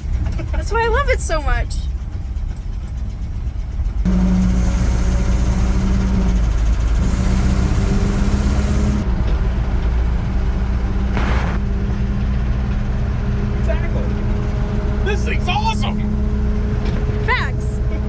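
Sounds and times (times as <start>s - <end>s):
engine running while driving: 0.0s - 18.0s
brief rushing noise: 11.1s - 11.7s.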